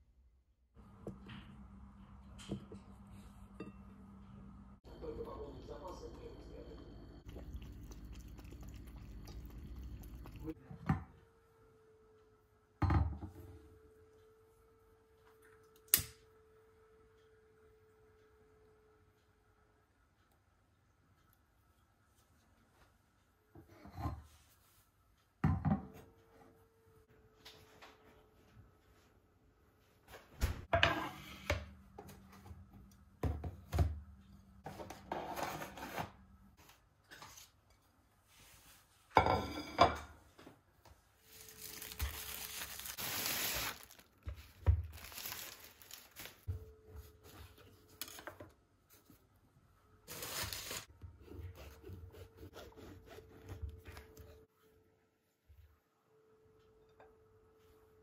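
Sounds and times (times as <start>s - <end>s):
rustling: 41.2s - 46.5s.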